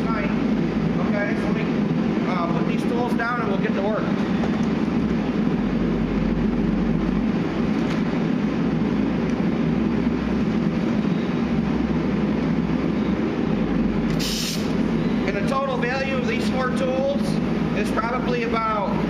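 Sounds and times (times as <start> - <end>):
shop equipment rumbling: 0.0 - 19.0
short sharp hiss: 14.1 - 14.8.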